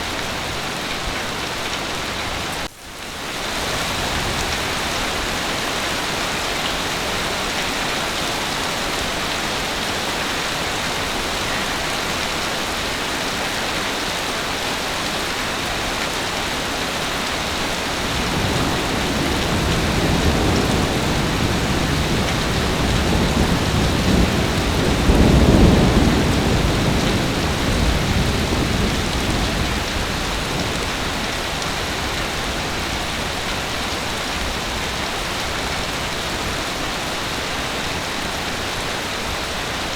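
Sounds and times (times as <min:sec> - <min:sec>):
heavy rain: 0:00.0 - 0:39.9
low rumble of thunder: 0:17.9 - 0:35.0.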